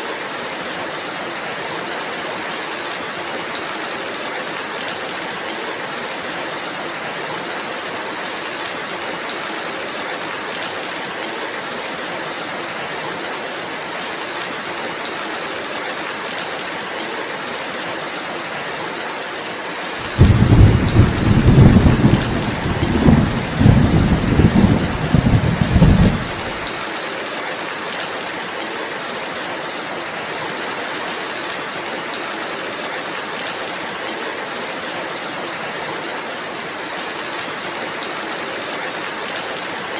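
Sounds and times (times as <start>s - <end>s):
steady rain falling: 0.0s - 39.9s
rolling thunder: 20.0s - 26.7s.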